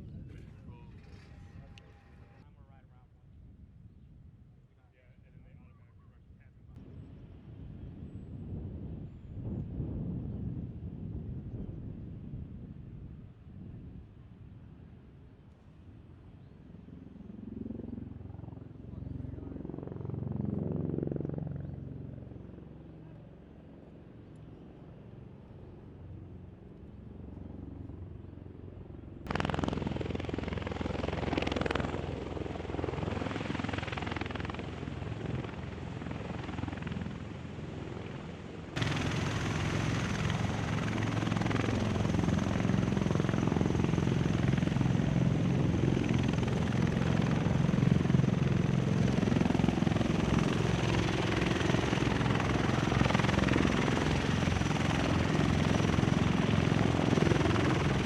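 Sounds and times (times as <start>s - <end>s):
helicopter rotor beating: 27.5s - 58.0s.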